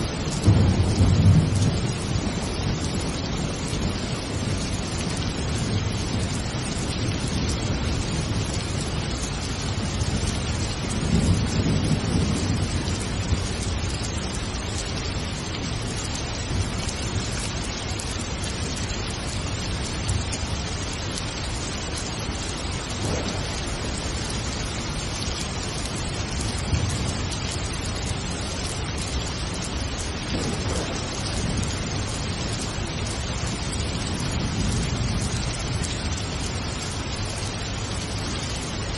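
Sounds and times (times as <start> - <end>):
low rolling thunder: 0.0 - 14.6, 22.6 - 28.4, 29.0 - 37.3
heavy rain: 0.0 - 38.9.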